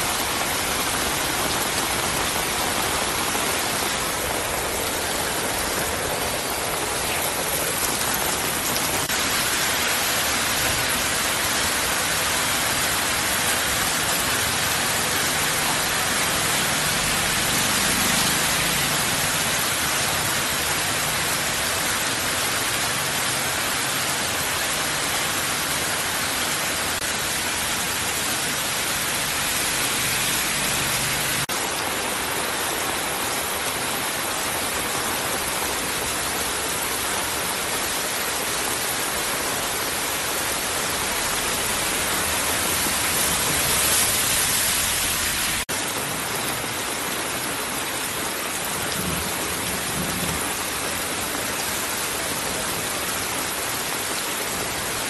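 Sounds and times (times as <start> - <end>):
heavy rain on a flooded street: 0.0 - 55.0
vehicle passing through water: 16.4 - 19.6.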